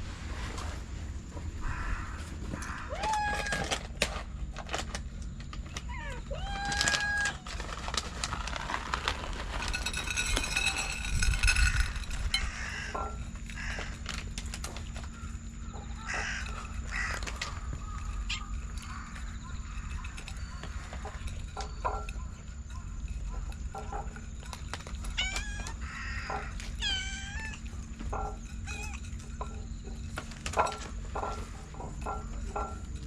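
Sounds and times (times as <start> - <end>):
rustling: 0.0 - 33.0
cat meowing: 2.8 - 3.8, 5.9 - 7.5, 25.1 - 27.7.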